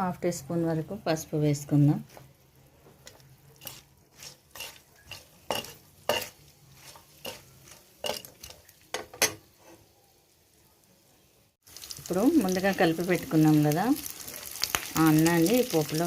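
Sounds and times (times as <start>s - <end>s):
metal spoon scraping a pan: 3.0s - 9.9s.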